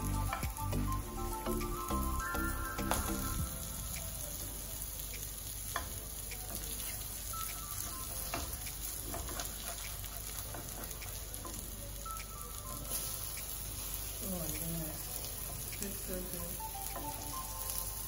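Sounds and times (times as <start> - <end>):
food sizzling in oil: 0.0 - 18.0
spatula scraping a pan: 8.3 - 11.3.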